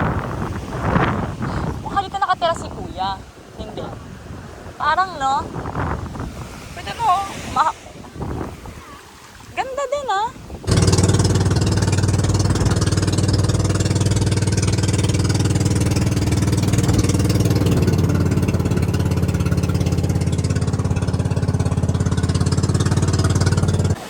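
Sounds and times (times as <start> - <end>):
small engine running: 10.7 - 24.0.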